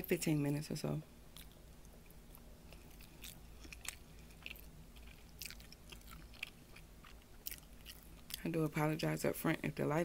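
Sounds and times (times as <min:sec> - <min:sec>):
person chewing: 0:01.3 - 0:08.4.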